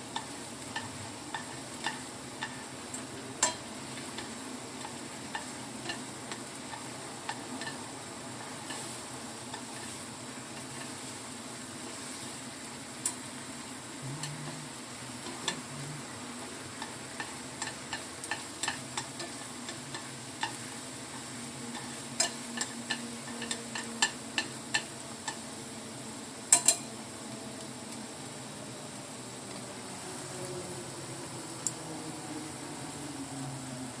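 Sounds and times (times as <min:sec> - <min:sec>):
steady hiss: 0:00.0 - 0:34.0
utensil tapping against pot: 0:00.1 - 0:07.8, 0:16.8 - 0:25.4.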